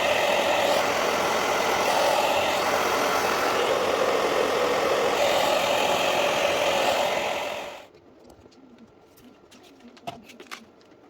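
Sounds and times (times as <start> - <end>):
heat gun blowing: 0.0 - 7.9.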